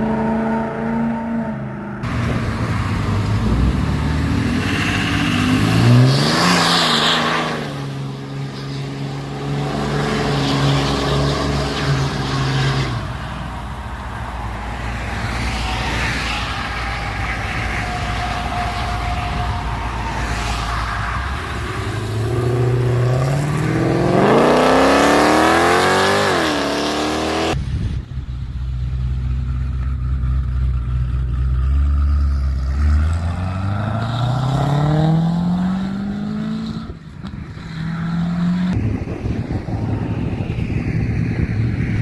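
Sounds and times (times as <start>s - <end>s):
car engine revving: 0.0s - 38.9s
car accelerating: 0.0s - 42.0s.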